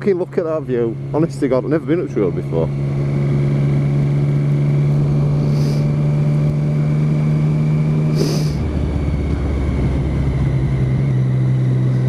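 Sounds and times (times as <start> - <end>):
motorcycle engine running: 0.0 - 12.0
short hisses: 5.4 - 5.9, 8.1 - 8.6.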